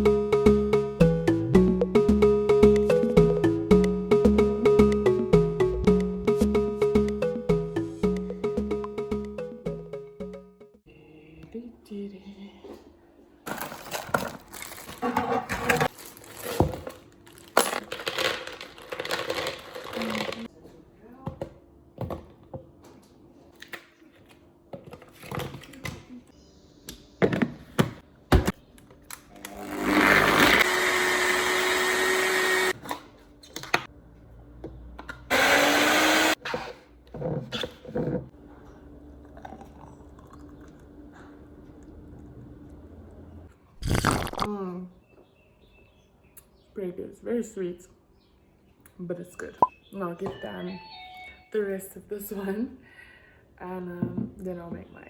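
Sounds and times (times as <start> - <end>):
kitchen items clattering: 13.5 - 20.5
blender running: 29.4 - 32.8, 35.3 - 36.4.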